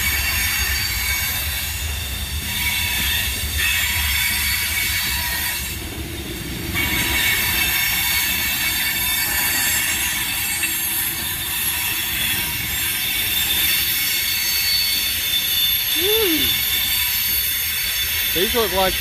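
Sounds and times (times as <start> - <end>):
freight train wheels rumbling: 0.0 - 19.0
high wheel squealing: 6.6 - 19.0.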